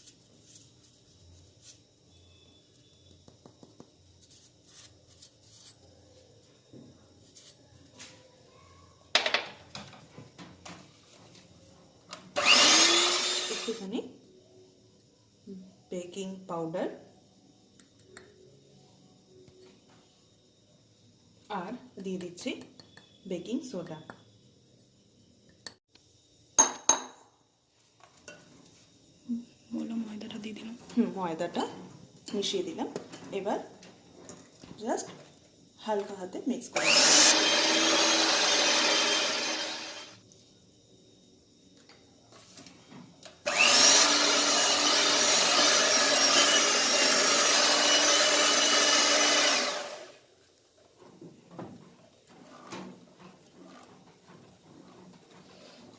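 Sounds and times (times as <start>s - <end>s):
electric mixer motor whining: 12.4s - 13.8s, 36.8s - 40.2s, 43.5s - 50.2s.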